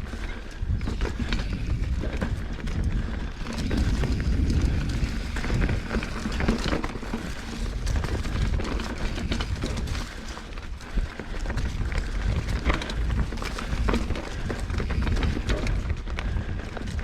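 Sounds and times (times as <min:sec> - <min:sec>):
tyres crunching: 0:00.0 - 0:15.9
bike rattling and clicking: 0:00.0 - 0:17.0
wind rumble on microphone: 0:00.0 - 0:17.0.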